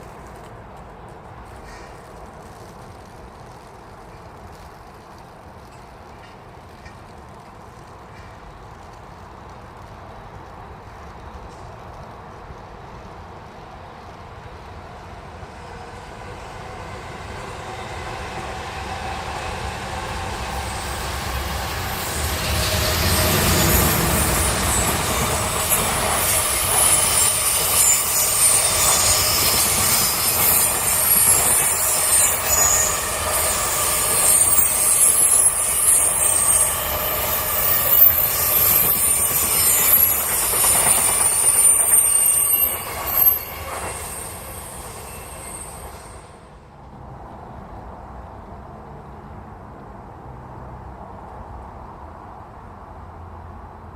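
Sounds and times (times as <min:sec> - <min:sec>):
train passing on rails: 0:00.0 - 0:53.9
high-pitched wheel squeal: 0:21.6 - 0:46.3.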